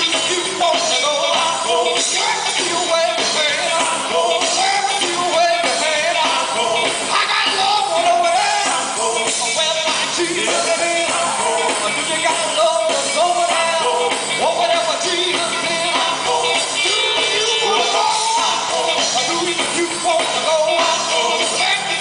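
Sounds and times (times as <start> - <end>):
gospel group singing: 0.0 - 22.0
instrumental backing with beat: 0.0 - 22.0.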